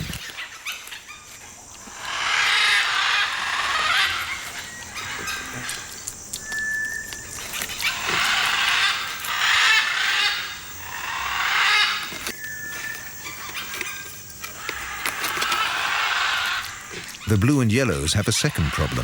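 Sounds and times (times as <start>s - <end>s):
harsh raspy animal squawks: 7.6s - 12.2s.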